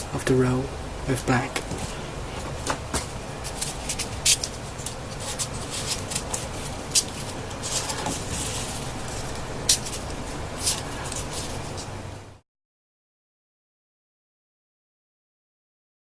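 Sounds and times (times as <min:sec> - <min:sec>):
paper rustling and clicking: 0:01.7 - 0:11.9.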